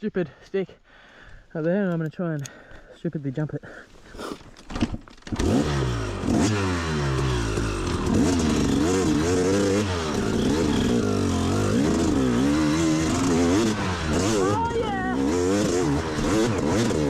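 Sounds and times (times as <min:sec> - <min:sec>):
dirt bike engine revving: 0:05.3 - 0:17.0.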